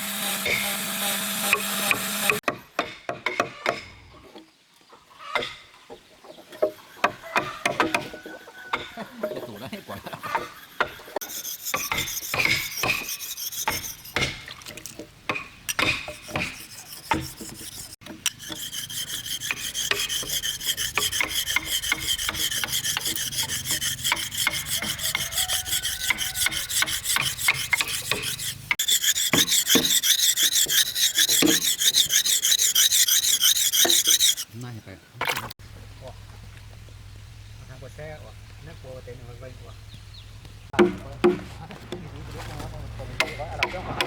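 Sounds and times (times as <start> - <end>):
tool rasping wood: 0.0 - 2.5, 6.6 - 14.4, 15.7 - 34.7.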